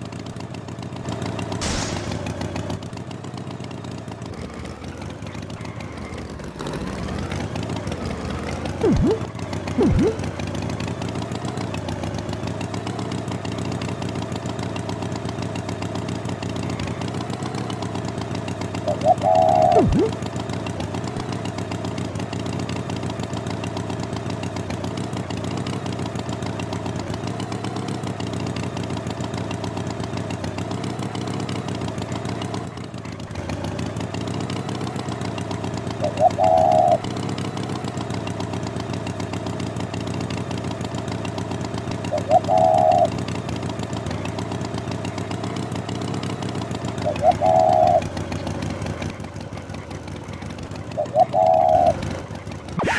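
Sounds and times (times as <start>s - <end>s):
engine running: 0.0s - 52.9s
short high-pitched sounds: 8.8s - 9.2s, 9.8s - 10.2s, 18.9s - 20.2s.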